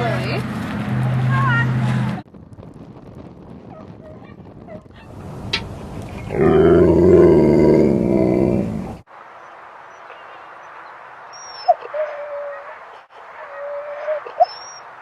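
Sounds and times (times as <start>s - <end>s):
dog growling vocalization: 6.3s - 9.0s.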